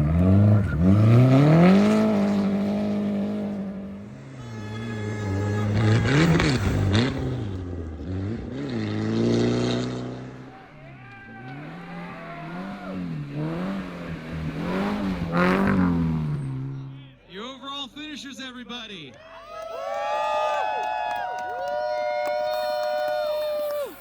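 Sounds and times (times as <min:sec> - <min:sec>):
rally car engines revving: 0:00.0 - 0:17.3.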